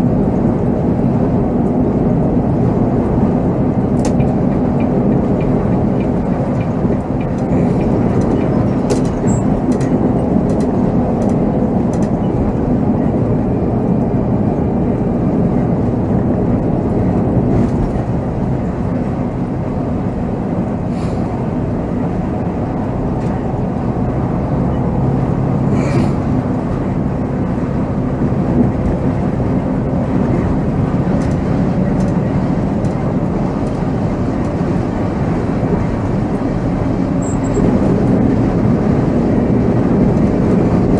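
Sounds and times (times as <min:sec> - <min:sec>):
coach engine drone: 0:00.0 - 0:40.9.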